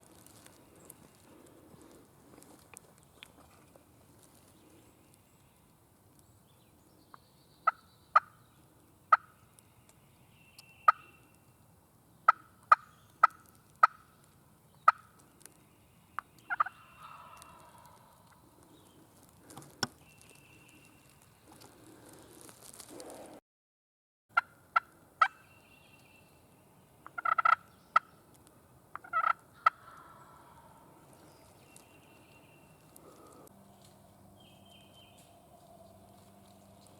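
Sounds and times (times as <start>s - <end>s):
turkey clucking: 10.9s - 11.1s, 12.3s - 14.0s, 14.8s - 15.1s, 16.4s - 18.4s, 27.0s - 28.1s, 28.9s - 30.8s.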